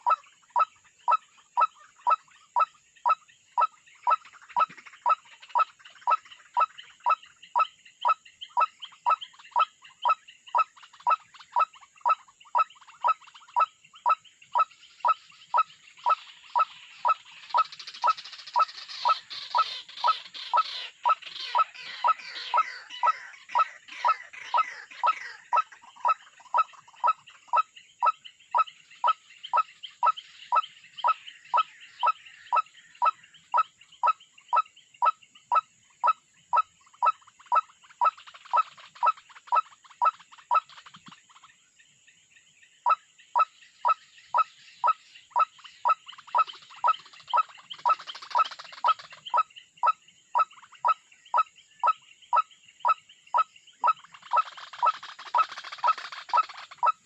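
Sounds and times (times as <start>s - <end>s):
waterhen calling: 3.6s - 29.2s, 51.8s - 57.0s.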